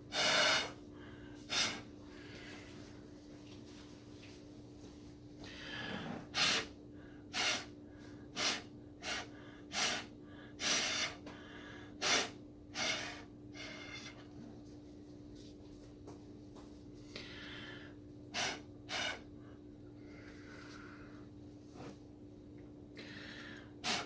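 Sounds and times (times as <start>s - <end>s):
steady low hum: 0.0s - 24.0s
puffs of breath through a straw: 1.4s - 2.7s, 5.4s - 14.2s, 23.0s - 24.0s.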